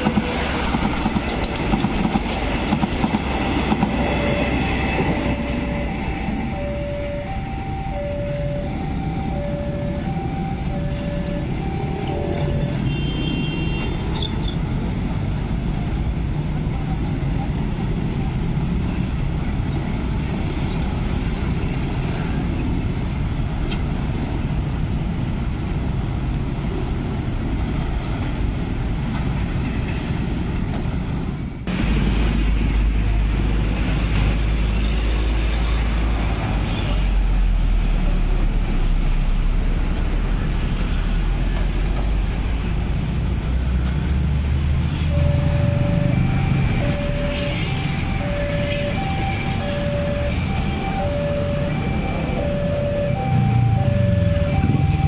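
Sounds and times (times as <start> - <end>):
heavy low engine rumble: 0.0 - 13.0, 35.5 - 55.0
road traffic passing: 0.0 - 55.0
two-note warning alarm: 4.1 - 13.0, 45.1 - 55.0.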